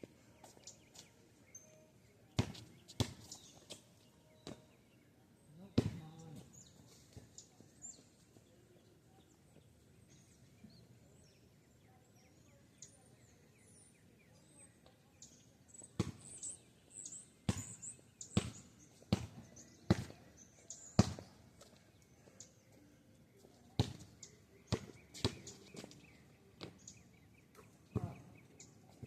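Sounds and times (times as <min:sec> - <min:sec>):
faint bird chirps: 0:00.1 - 0:29.0
basketball bouncing on pavement: 0:02.4 - 0:03.8, 0:04.4 - 0:04.7, 0:05.8 - 0:06.4, 0:16.0 - 0:16.3, 0:17.5 - 0:20.2, 0:21.0 - 0:21.3, 0:23.8 - 0:24.1, 0:24.7 - 0:25.9, 0:27.9 - 0:28.3.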